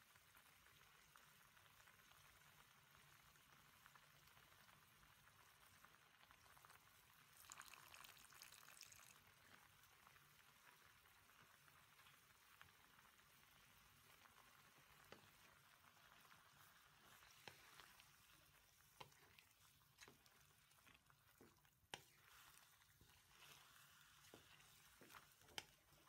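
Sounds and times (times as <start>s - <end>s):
pork sizzling faintly in a pan: 0.0s - 26.0s
wooden spatula clicks and scrapes: 11.6s - 26.0s.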